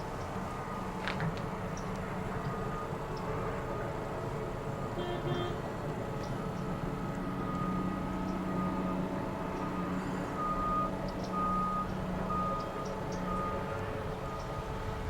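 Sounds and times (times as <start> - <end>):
low engine drone: 0.0 - 15.0
reversing alarm beeping: 2.4 - 4.0, 6.2 - 14.9.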